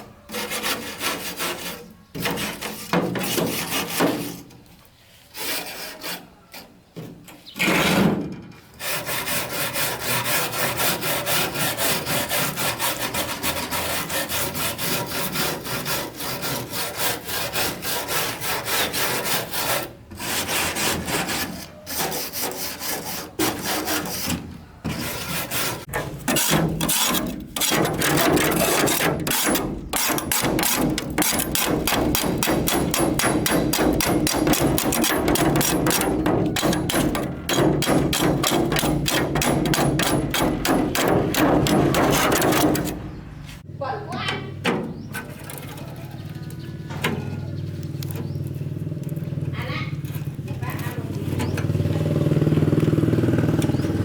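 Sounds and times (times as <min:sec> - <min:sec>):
hand tool rasping strokes: 0:00.2 - 0:04.5, 0:05.2 - 0:06.7, 0:08.7 - 0:43.6.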